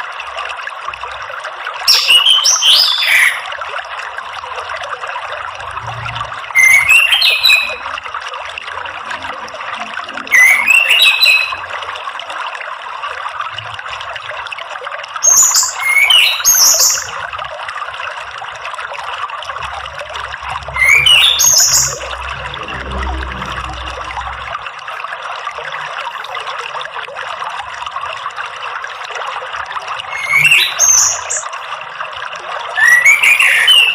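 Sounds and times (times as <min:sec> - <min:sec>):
running water: 0:00.0 - 0:33.9
thrush calling: 0:01.9 - 0:03.5, 0:06.6 - 0:07.8, 0:10.2 - 0:11.7, 0:19.8 - 0:24.5.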